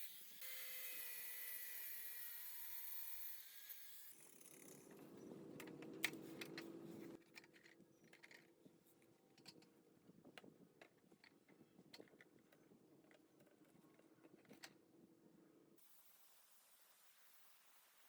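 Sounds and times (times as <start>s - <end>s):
small motor whining and humming: 0.0s - 7.2s.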